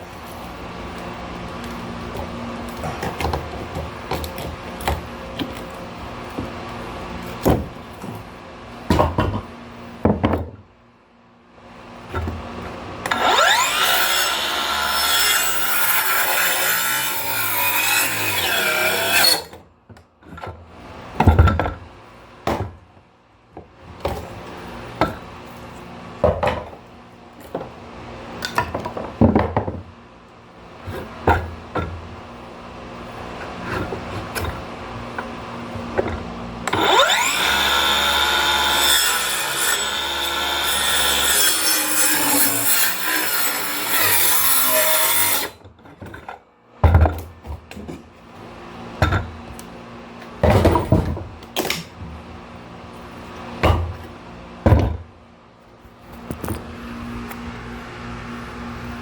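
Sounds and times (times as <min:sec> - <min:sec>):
power saw cutting wood: 0:13.0 - 0:19.6, 0:36.7 - 0:45.6.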